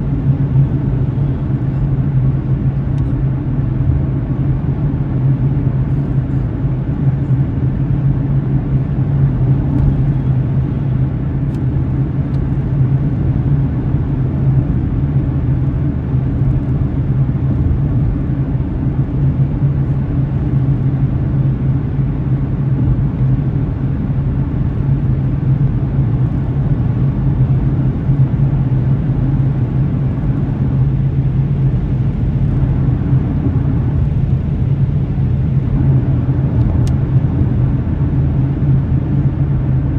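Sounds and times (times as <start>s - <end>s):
car driving rumble: 0.0s - 39.9s
low hum: 23.9s - 39.9s.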